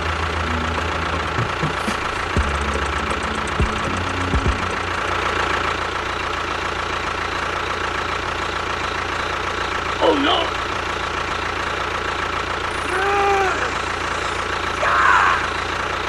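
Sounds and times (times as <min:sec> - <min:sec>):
short low thumps: 0:00.2 - 0:05.0.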